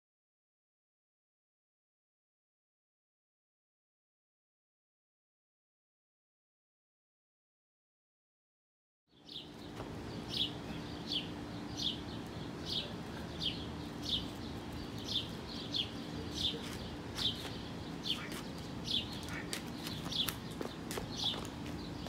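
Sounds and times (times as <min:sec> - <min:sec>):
bird chirping: 0:09.1 - 0:22.0
low steady hum: 0:09.2 - 0:22.0.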